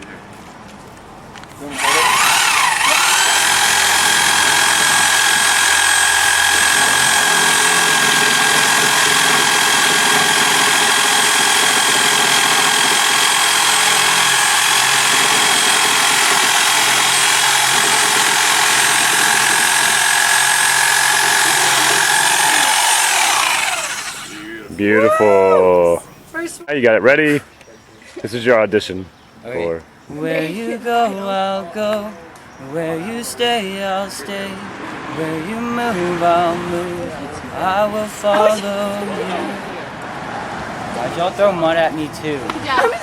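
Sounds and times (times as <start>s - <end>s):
circular saw whining: 1.7s - 25.5s.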